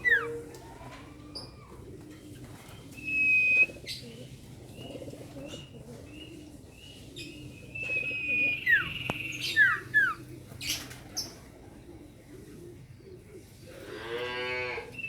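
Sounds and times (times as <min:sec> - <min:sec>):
bird whistling song: 0:03.0 - 0:03.7, 0:07.7 - 0:10.2.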